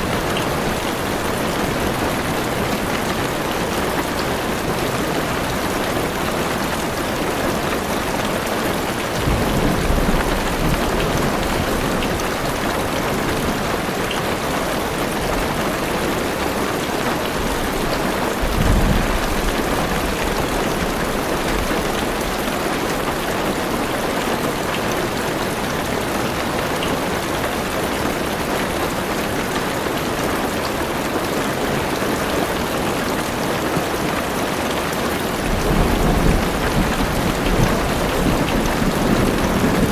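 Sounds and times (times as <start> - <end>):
heavy rain on car roof: 0.0 - 39.9
low rumbles of thunder: 9.2 - 12.5, 17.4 - 22.5, 35.4 - 39.9.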